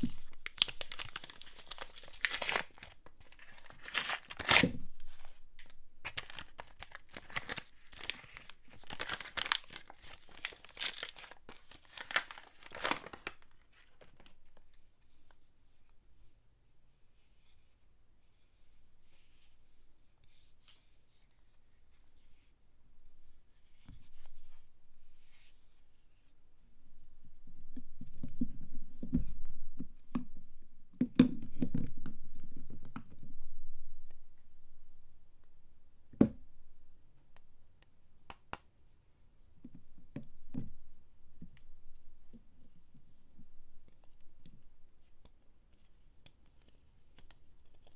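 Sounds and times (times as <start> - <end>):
packaging rustling: 0.0 - 14.3
soap wrapper crinkling and tearing: 0.0 - 14.4.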